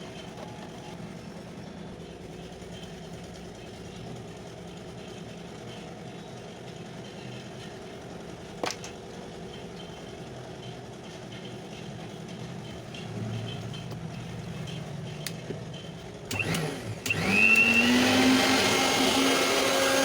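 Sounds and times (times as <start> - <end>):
mixer grinder motor running: 16.3 - 20.0.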